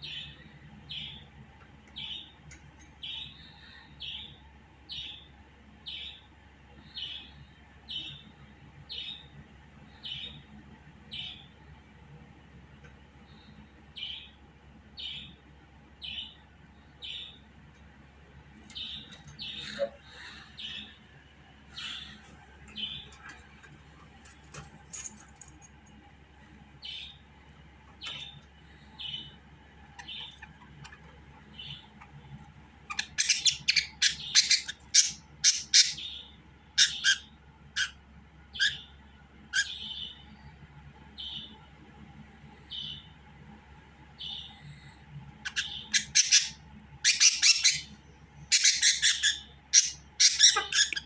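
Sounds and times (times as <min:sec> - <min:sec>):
budgerigar chirping: 0:32.8 - 0:38.9, 0:39.5 - 0:40.2, 0:45.5 - 0:51.0
budgerigar chattering calls: 0:32.9 - 0:38.0, 0:38.6 - 0:38.9, 0:39.5 - 0:40.1, 0:45.5 - 0:47.9, 0:48.5 - 0:51.0.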